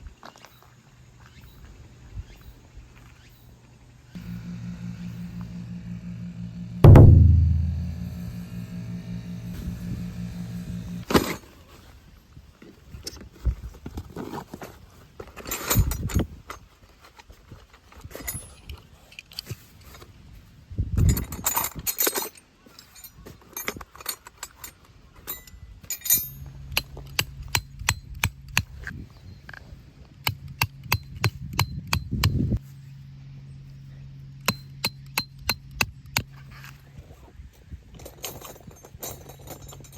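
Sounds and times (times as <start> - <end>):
steady low hum: 4.2 - 11.1.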